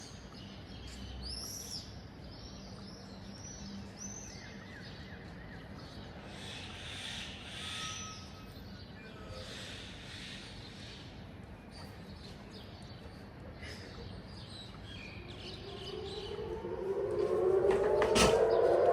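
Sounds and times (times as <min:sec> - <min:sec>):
low city hum: 0:00.0 - 0:18.9
birds chirping: 0:00.2 - 0:18.9.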